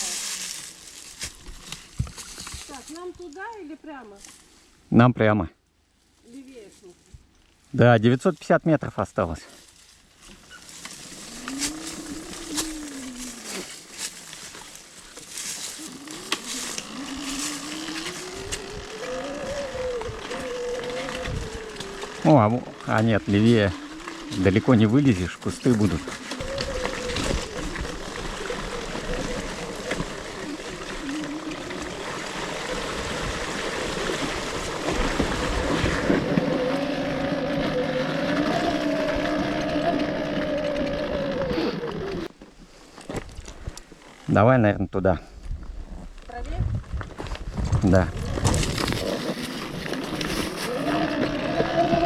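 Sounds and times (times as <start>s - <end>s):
electric motorcycle motor whining: 10.6s - 42.3s, 48.1s - 52.0s
wind noise on microphone: 16.9s - 21.9s, 26.3s - 30.2s, 45.3s - 52.0s.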